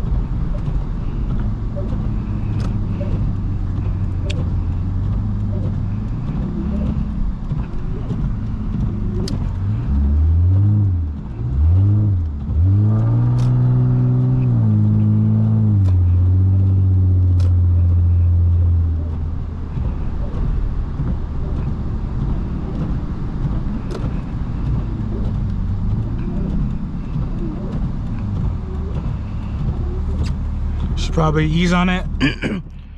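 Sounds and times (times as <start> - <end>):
car engine revving: 0.0 - 32.9
sharp clicks: 0.4 - 9.6, 12.2 - 16.2.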